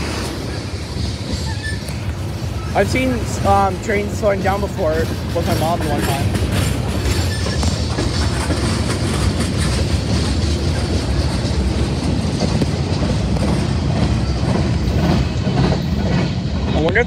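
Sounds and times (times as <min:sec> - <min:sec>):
freight train rolling slowly: 0:00.0 - 0:17.0
steel wheels on rails: 0:00.0 - 0:17.0.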